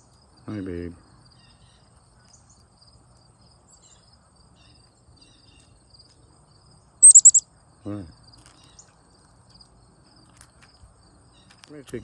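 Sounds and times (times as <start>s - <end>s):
crickets trilling: 0.0s - 12.0s
small birds chirping: 6.8s - 7.4s.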